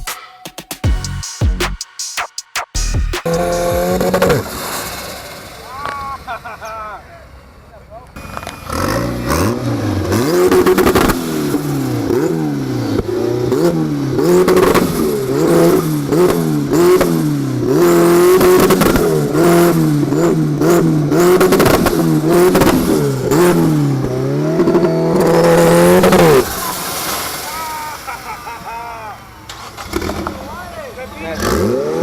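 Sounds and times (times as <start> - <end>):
car engine revving: 2.7 - 5.7, 8.2 - 27.4, 31.2 - 32.0.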